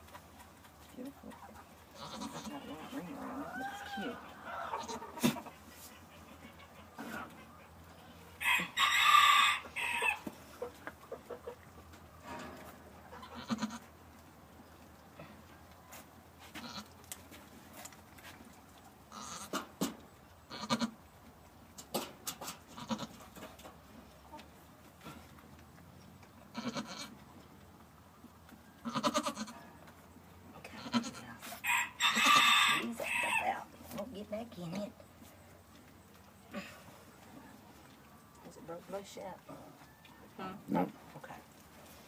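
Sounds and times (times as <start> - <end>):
loud farm animal call: 1.4 - 12.4, 13.0 - 14.0, 16.4 - 17.0, 19.0 - 21.1, 21.9 - 23.5, 26.4 - 27.4, 28.8 - 29.9, 30.6 - 33.7
goat bleating: 1.9 - 5.4, 13.1 - 13.9, 16.6 - 16.9, 19.1 - 19.7, 20.5 - 21.0, 22.7 - 23.2, 26.5 - 27.2, 28.8 - 29.6, 30.8 - 33.4.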